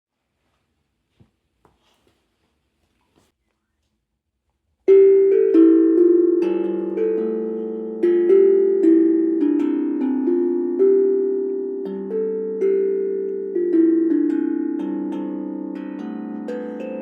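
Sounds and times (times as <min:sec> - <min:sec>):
steel tongue drum melody: 0:04.9 - 0:17.0.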